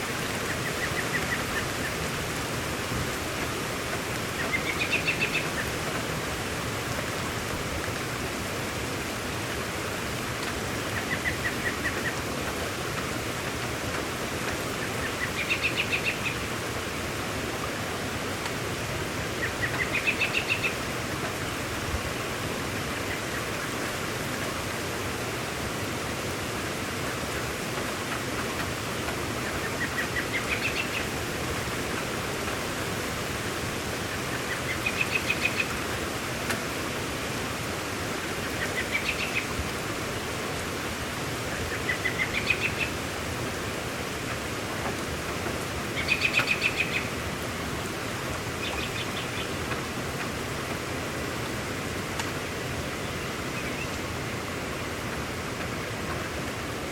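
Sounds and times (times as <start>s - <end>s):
heavy rain hissing: 0.0s - 56.9s
bird song: 4.3s - 5.7s, 14.8s - 16.5s, 19.4s - 20.8s, 29.6s - 31.1s, 34.3s - 35.8s, 38.4s - 39.6s, 41.6s - 43.0s, 46.0s - 47.1s, 48.6s - 49.6s, 53.0s - 54.0s.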